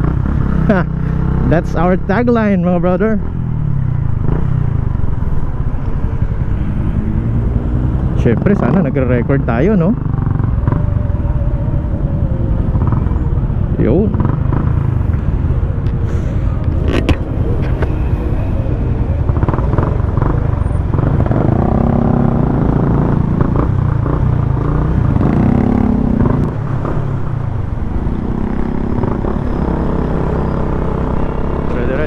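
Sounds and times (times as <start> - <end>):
motorcycle engine running: 0.0 - 32.0
wind rumble on camera: 10.1 - 30.0.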